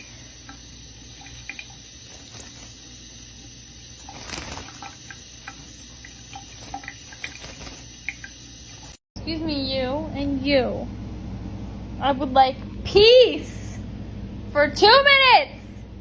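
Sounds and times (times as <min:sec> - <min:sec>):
water running from sink tap: 0:00.0 - 0:09.0.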